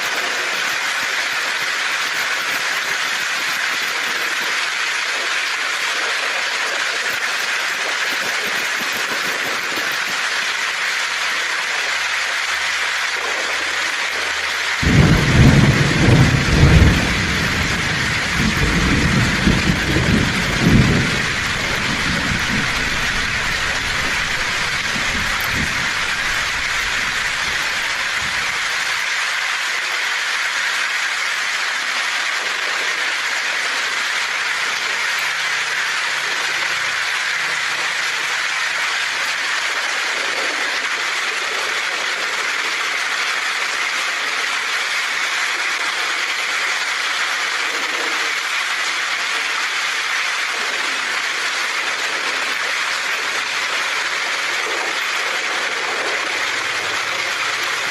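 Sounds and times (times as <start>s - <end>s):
heavy rain on a tin roof: 0.0s - 57.9s
thunder rumbling: 14.7s - 29.0s, 56.1s - 57.9s.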